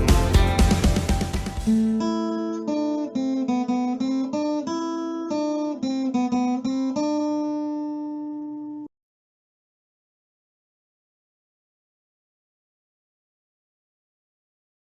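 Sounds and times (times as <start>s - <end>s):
band playing: 0.0s - 1.8s
solo guitar plucked melody: 0.0s - 8.9s.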